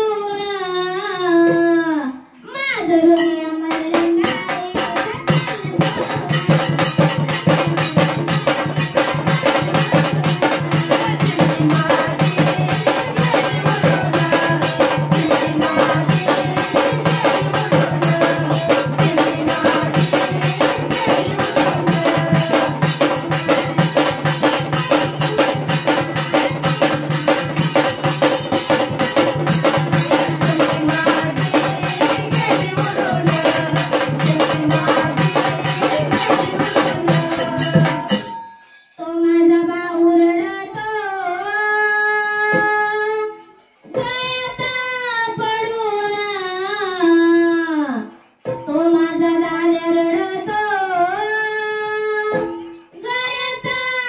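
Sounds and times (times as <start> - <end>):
fast percussion beat with jingles: 3.1 - 39.1.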